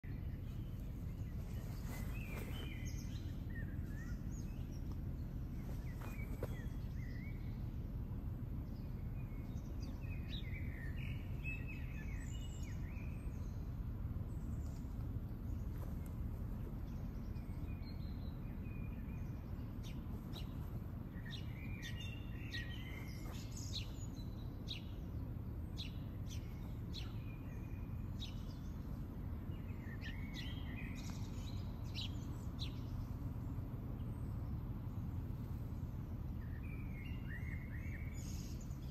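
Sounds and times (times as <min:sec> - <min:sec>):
songbirds singing: 0:00.0 - 0:38.9
steady low background rumble: 0:00.0 - 0:38.9.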